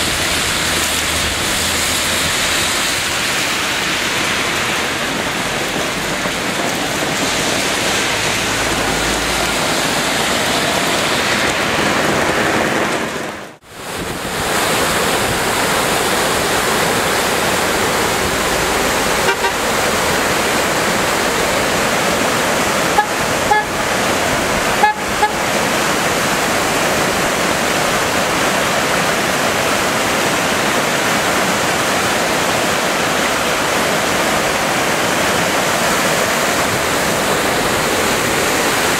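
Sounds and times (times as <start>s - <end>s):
heavy rain: 0.0s - 38.9s
rushing floodwater: 0.0s - 38.9s
car horn toots: 19.2s - 19.7s, 22.9s - 23.8s, 24.8s - 25.5s.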